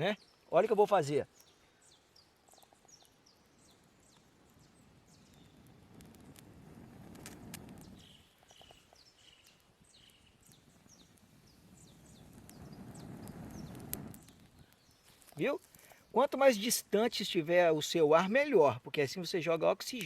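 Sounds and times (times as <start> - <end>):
birds chirping: 0.0 - 5.8, 7.7 - 17.4
faint crackles of embers: 0.0 - 20.0.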